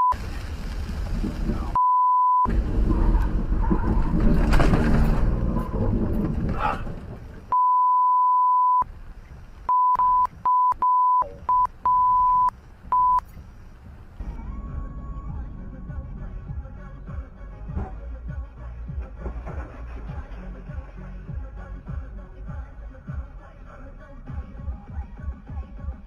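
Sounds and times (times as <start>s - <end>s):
vehicle and road noise: 0.0s - 1.8s, 2.5s - 7.6s, 8.8s - 24.9s
censor bleeps: 1.8s - 2.5s, 7.5s - 8.9s, 9.7s - 13.2s.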